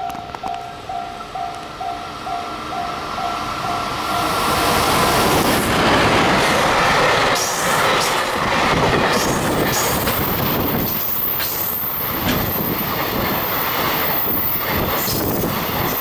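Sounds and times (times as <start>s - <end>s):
train passing at speed: 0.0s - 16.0s
wheels clicking over rail joints: 5.9s - 16.0s.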